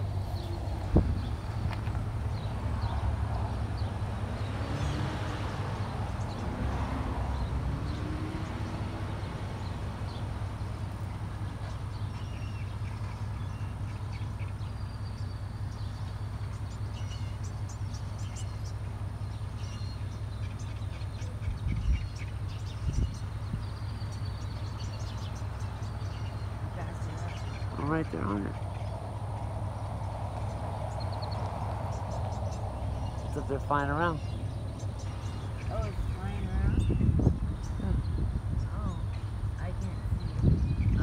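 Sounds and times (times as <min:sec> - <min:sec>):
low rumble: 0:00.0 - 0:04.6, 0:21.5 - 0:41.0
small birds chirping: 0:00.0 - 0:41.0.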